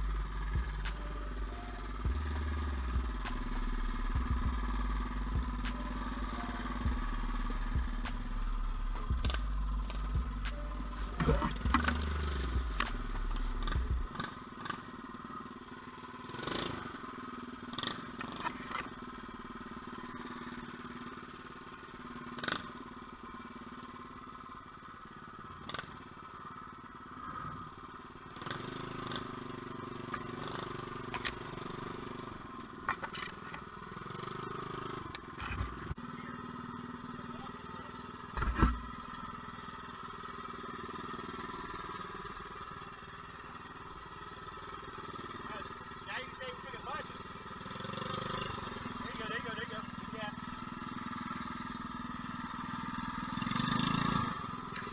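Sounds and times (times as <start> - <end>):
mini bike engine running: 0.0 - 54.9
loud thump: 38.4 - 39.1.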